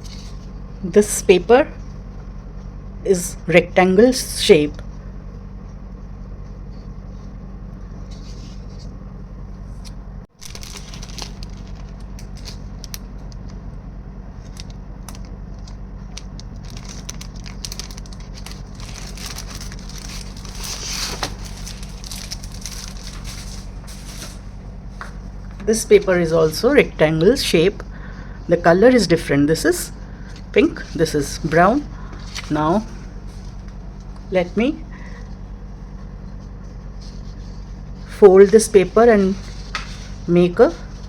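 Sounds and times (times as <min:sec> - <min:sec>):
paper crinkling and rustling: 0:00.0 - 0:00.6, 0:07.9 - 0:09.0, 0:09.7 - 0:13.7, 0:14.3 - 0:26.1, 0:30.3 - 0:41.0
steady low hum: 0:00.0 - 0:41.0.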